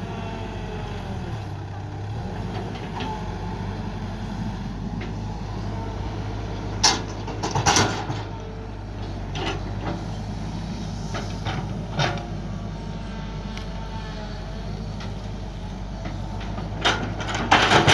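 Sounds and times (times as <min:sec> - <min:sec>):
excavator engine running: 0:00.0 - 0:17.9
digging knocks and clunks: 0:06.6 - 0:10.2, 0:14.8 - 0:17.9.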